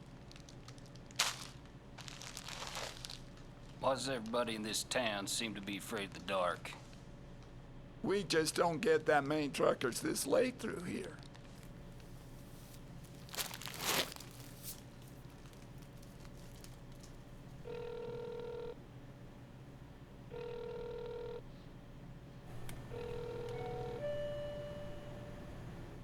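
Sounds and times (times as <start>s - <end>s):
steady phone line tone: 17.2s - 26.0s
telephone ringback tone: 17.6s - 18.8s, 20.3s - 21.5s, 22.5s - 26.0s.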